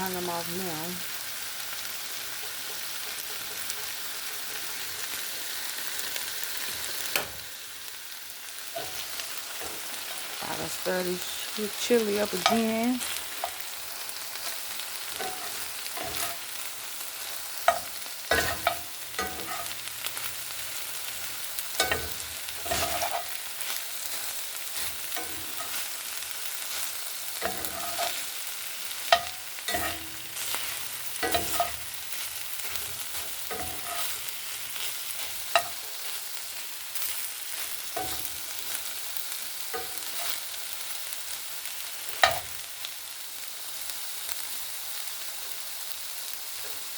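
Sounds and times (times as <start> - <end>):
chili sizzling: 0.0 - 46.9
spoon scraping a pot: 15.1 - 16.5, 17.2 - 26.0, 26.7 - 36.2, 39.8 - 40.4.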